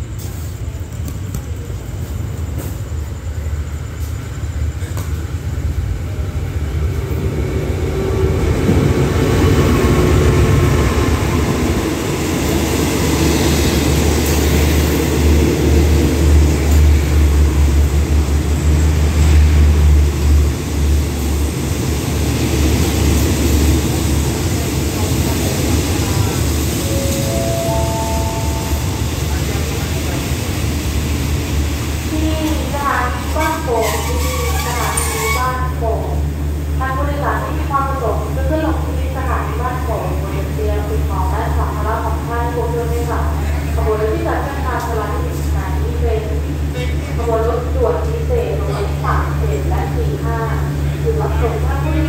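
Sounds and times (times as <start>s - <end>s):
train coaches rolling on rails: 0.0s - 36.8s
diesel locomotive engine rumble: 0.0s - 52.0s.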